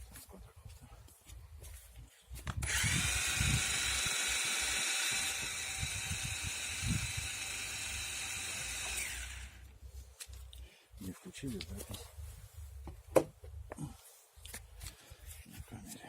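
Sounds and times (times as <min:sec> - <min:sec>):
quadcopter propellers whining buzz: 0:02.6 - 0:09.6.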